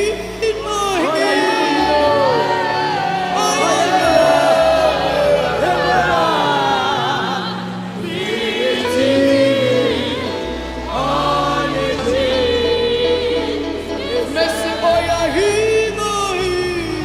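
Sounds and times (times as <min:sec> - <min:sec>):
gospel choir singing: 0:00.0 - 0:17.0
steady bass accompaniment: 0:00.0 - 0:17.0.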